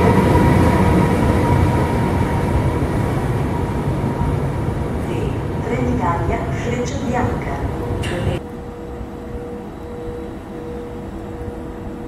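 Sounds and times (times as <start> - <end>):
train wheels rumbling on rail: 0.0 - 12.0
thin high whine: 8.0 - 12.0.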